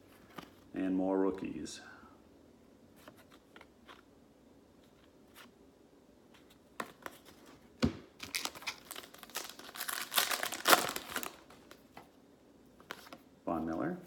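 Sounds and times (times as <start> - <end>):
plastic wrapper tearing and crackling: 8.2 - 11.8.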